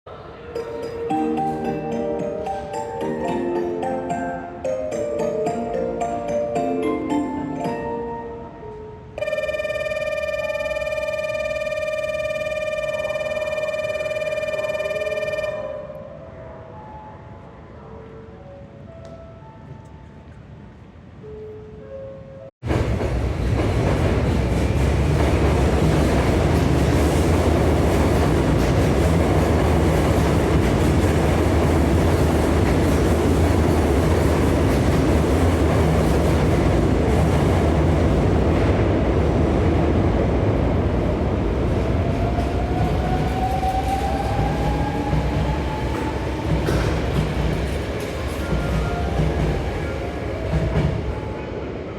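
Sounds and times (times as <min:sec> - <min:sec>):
electric train passing: 0:00.1 - 0:51.9
station chime tones: 0:00.5 - 0:15.9
train wheels clattering on rails: 0:22.6 - 0:39.4, 0:41.8 - 0:51.4.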